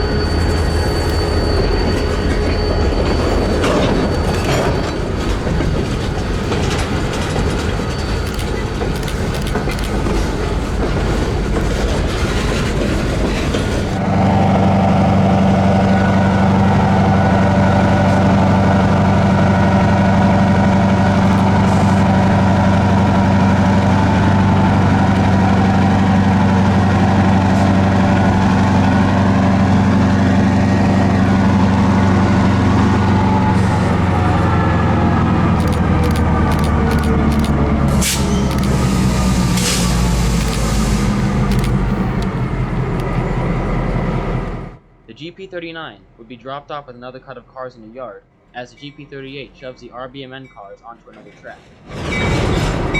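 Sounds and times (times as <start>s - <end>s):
freight cars clattering on rails: 0.0s - 14.0s, 51.0s - 52.9s
diesel locomotive engine running: 0.0s - 45.1s.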